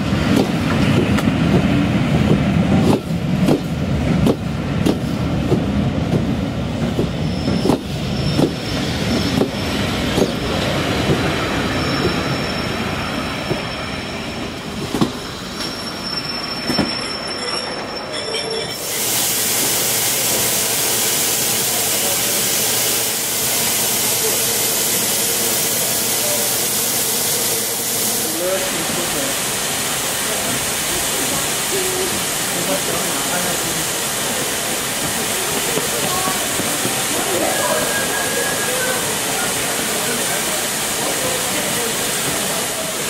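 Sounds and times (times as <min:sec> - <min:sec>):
train wheels clicking over rail joints: 0:00.3 - 0:11.3, 0:34.4 - 0:37.2
thin high brake squeal: 0:11.6 - 0:14.5, 0:15.6 - 0:19.0
loud hiss of steam: 0:18.7 - 0:43.0.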